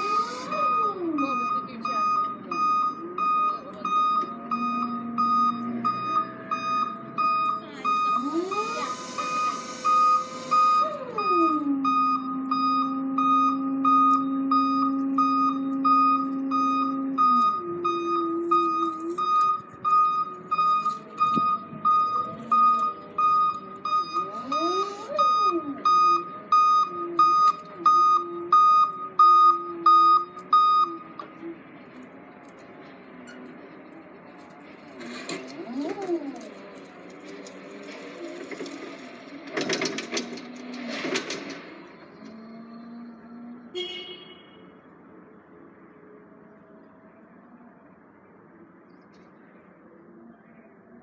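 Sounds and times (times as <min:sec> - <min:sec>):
forklift warning beeper: 0:00.0 - 0:31.4
forklift motor whine: 0:00.0 - 0:39.8, 0:41.8 - 0:43.8.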